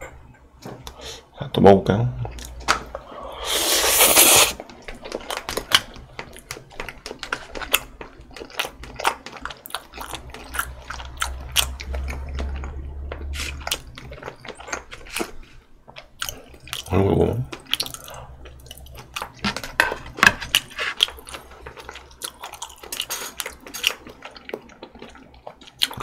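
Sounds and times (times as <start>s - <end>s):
spaghetti slurping: 3.4s - 4.6s
wet chewing: 3.6s - 26.0s.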